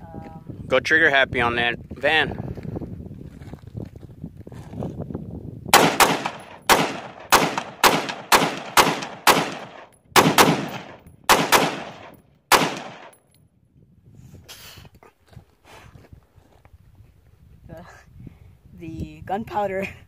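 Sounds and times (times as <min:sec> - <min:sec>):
rapid gunshots with echo: 0:05.7 - 0:13.1.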